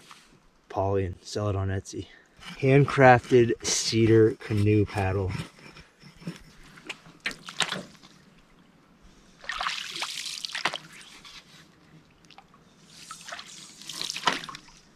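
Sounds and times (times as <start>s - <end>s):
water splashing: 9.4s - 11.2s, 12.2s - 14.9s.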